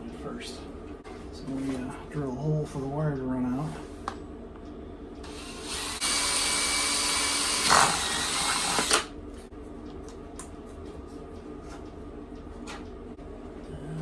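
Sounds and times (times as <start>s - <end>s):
power drill boring: 5.3s - 9.1s.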